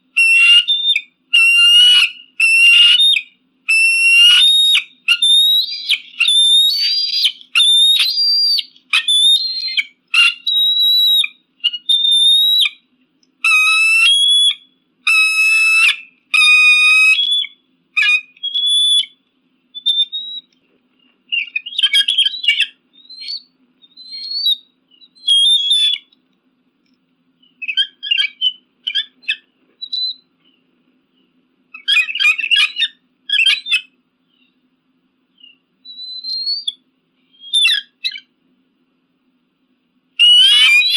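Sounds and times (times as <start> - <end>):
eagle screaming: 0.2 - 12.7, 13.4 - 19.1, 40.2 - 40.9
eagle chattering: 0.2 - 12.8, 40.2 - 40.9.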